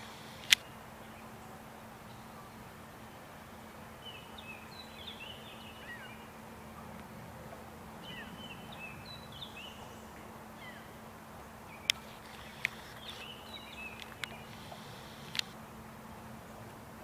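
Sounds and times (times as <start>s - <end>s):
small birds chirping: 0.0s - 1.5s, 8.0s - 15.6s
low steady hum: 0.0s - 17.0s.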